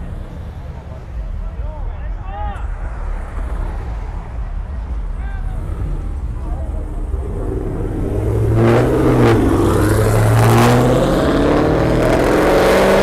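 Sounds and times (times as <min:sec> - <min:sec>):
car engine revving: 0:02.6 - 0:13.0.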